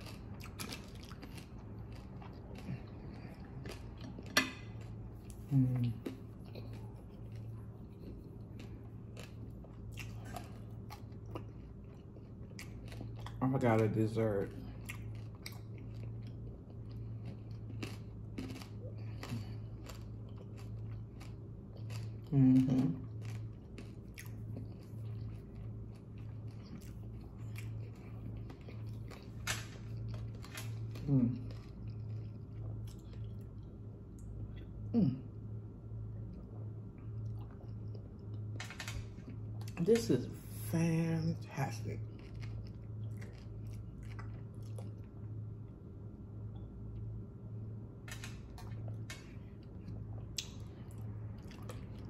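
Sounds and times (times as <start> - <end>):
close-up chewing: 0.0 - 34.8, 36.2 - 40.6, 41.7 - 45.9, 48.2 - 52.0
low hum: 0.0 - 52.0
person humming: 34.9 - 35.3.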